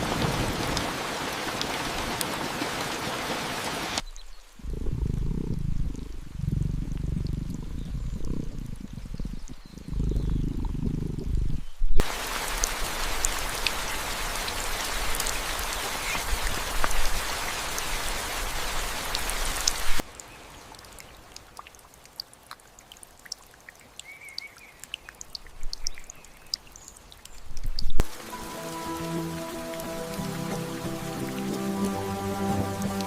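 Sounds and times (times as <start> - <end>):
heavy rain hissing: 0.0 - 4.0, 4.6 - 20.0, 28.0 - 33.0
raindrops dripping and pattering: 0.0 - 33.0
music with sustained notes: 28.0 - 33.0.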